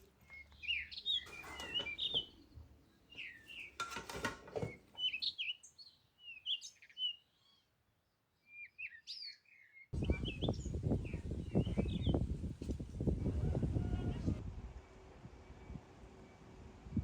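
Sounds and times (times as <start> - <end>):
small birds chirping: 0.0 - 3.9, 4.6 - 12.8.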